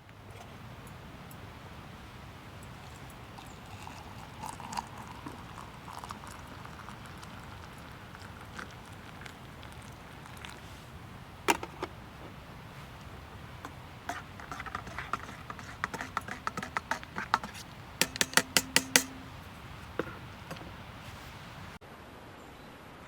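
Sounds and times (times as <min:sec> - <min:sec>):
small hard objects clattering: 0:11.4 - 0:21.4.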